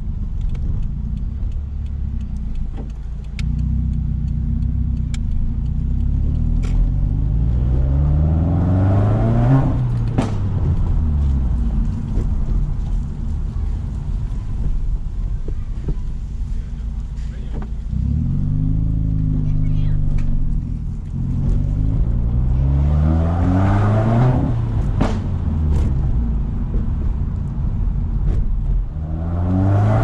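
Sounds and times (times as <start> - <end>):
small exhaust cracks: 0.0 - 7.3
turbocharged car engine accelerating: 0.0 - 30.0
loud sharp exhaust pop: 9.7 - 11.1, 24.2 - 26.4.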